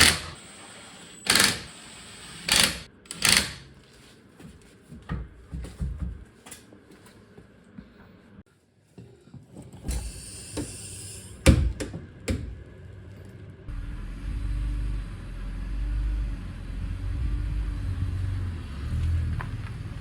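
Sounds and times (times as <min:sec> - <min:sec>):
car engine running: 0:13.7 - 0:20.0.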